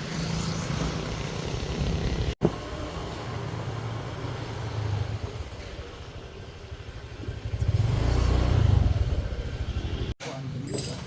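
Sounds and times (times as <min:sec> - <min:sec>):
small motorcycle engine running: 0:00.0 - 0:02.4, 0:06.2 - 0:10.0
road and wind noise: 0:00.0 - 0:10.2.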